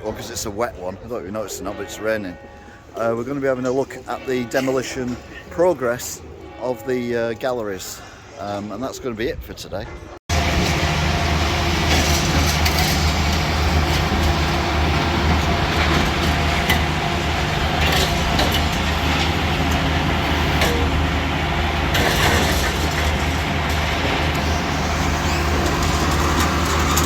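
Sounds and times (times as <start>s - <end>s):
diesel engine droning: 10.3s - 27.0s
knocks and clatter: 15.1s - 21.0s, 21.9s - 24.6s.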